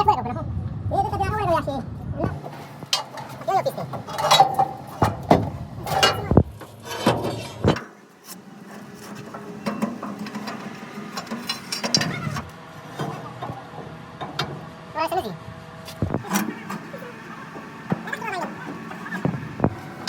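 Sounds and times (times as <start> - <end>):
hand tools clanking on metal: 2.4 - 13.5.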